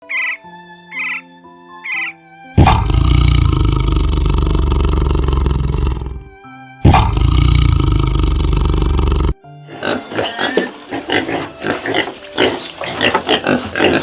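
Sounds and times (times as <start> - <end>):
soft background music: 0.0 - 14.0
long loud animal roars: 2.6 - 6.2, 6.9 - 9.9.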